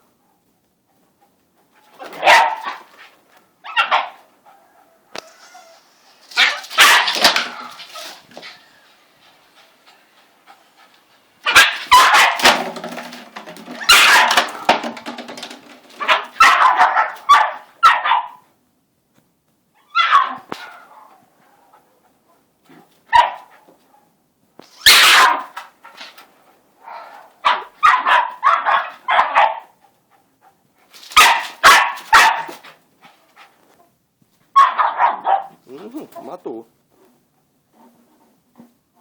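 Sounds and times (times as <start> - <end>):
dog barking: 2.0 - 2.9, 3.7 - 5.0, 6.4 - 7.8, 11.4 - 12.5, 13.9 - 14.5, 16.0 - 18.4, 20.0 - 21.2, 23.1 - 24.1, 24.8 - 25.5, 26.9 - 29.7, 31.2 - 32.6, 34.6 - 35.6.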